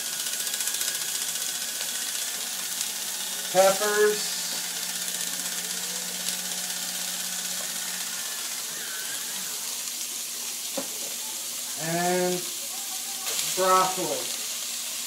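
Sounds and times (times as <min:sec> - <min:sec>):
vegetables sizzling in a wok: 0:00.0 - 0:15.0.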